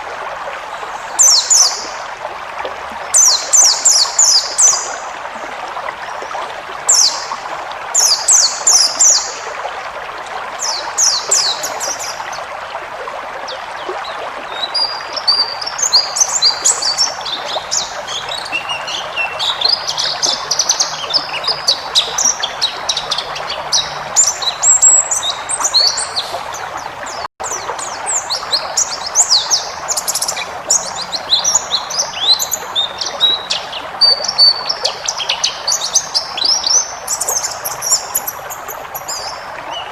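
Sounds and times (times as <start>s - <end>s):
songbird chirping and twittering: 14.5s - 39.9s.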